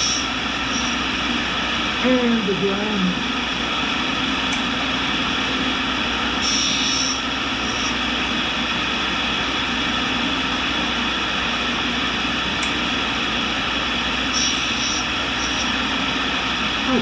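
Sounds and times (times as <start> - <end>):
grinder wheel hissing: 0.0 - 1.1, 6.4 - 8.1, 14.2 - 16.2.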